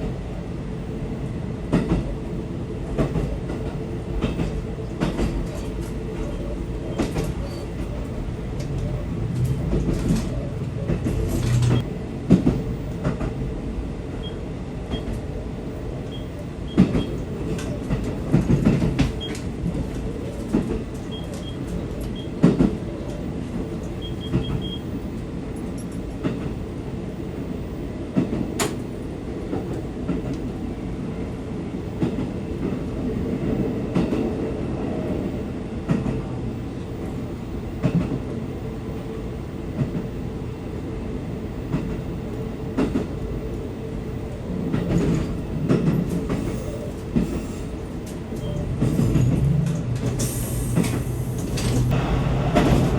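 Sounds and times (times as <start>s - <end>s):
train rumbling on track: 0.0s - 52.9s
wheels clicking on rail joints: 3.0s - 13.3s, 16.1s - 24.8s, 44.7s - 52.9s.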